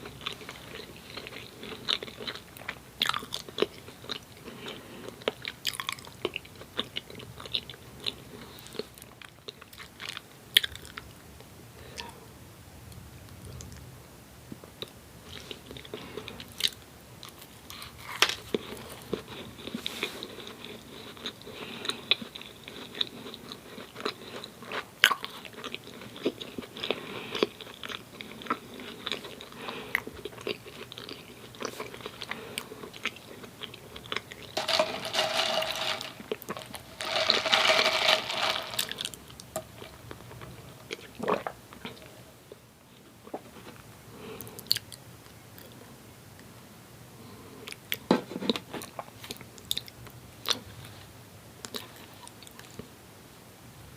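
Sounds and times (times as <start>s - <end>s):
person chewing: 0.0s - 11.0s, 14.8s - 42.1s.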